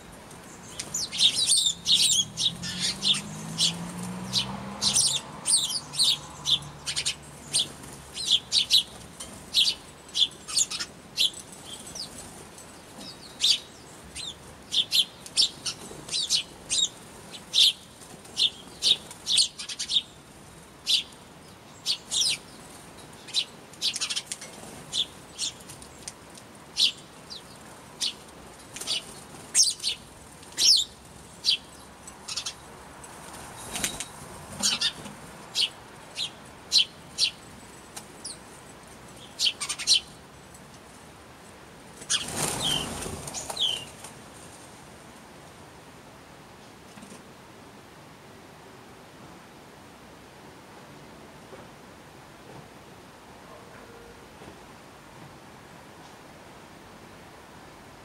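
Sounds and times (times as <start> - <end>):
small birds chirping: 0.0 - 32.7, 33.5 - 40.4, 42.0 - 44.1.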